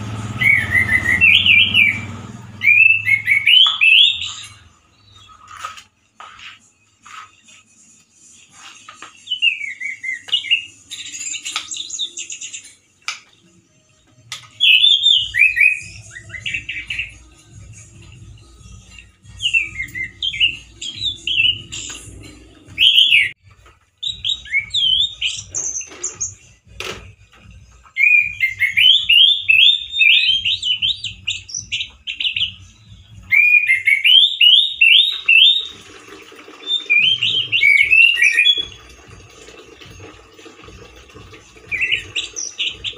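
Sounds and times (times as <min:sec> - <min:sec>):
thrush singing: 0:00.0 - 0:04.7.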